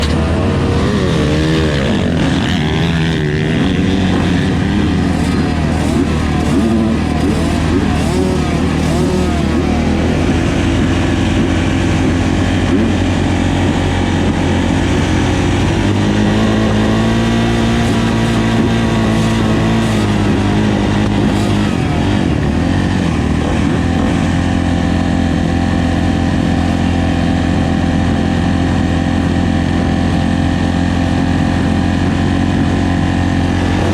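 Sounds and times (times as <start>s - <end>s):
motorbike engine running: 0.0s - 33.9s.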